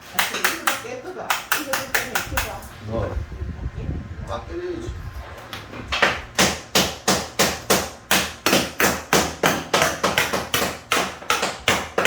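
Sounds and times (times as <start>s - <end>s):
hammer striking: 6.0s - 12.0s.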